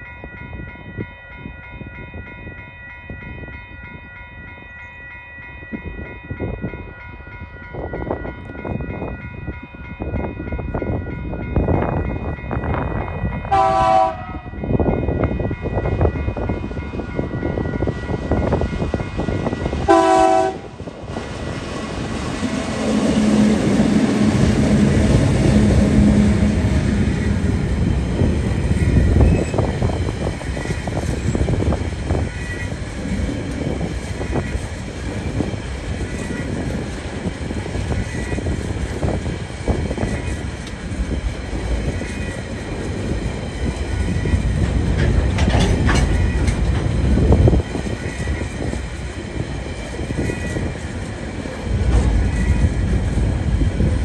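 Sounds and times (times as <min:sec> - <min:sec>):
locomotive engines droning: 0:02.5 - 0:54.0
train horn blast: 0:13.5 - 0:14.6, 0:19.8 - 0:20.7, 0:22.8 - 0:27.2
wheels clacking on rail joints: 0:17.8 - 0:53.1.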